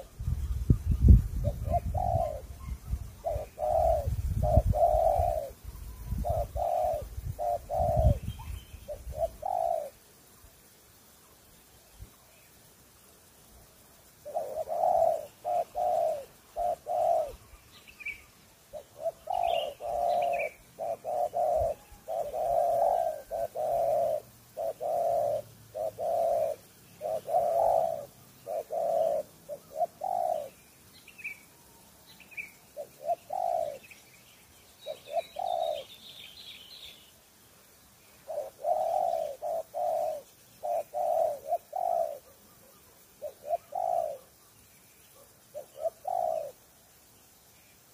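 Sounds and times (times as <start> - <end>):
dove cooing: 0.0 - 10.0, 14.2 - 30.6, 32.2 - 34.1, 34.8 - 36.1, 38.2 - 44.4, 45.1 - 46.7
small birds chirping: 0.0 - 47.9.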